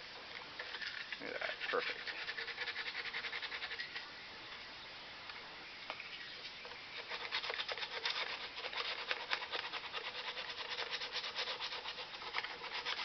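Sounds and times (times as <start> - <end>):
sandpaper rubbing: 1.5 - 4.0, 7.0 - 13.0.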